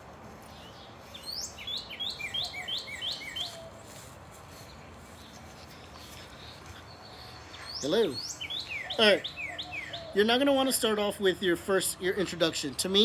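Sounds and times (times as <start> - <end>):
bird singing descending notes: 0.8 - 3.8, 6.5 - 11.2.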